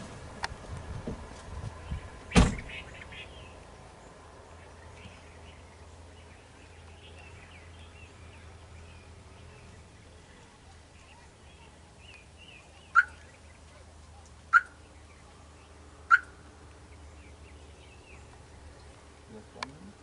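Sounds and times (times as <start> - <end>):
faint small birds chirping: 1.8 - 20.0
loud short bird calls: 1.9 - 3.6, 10.2 - 13.4.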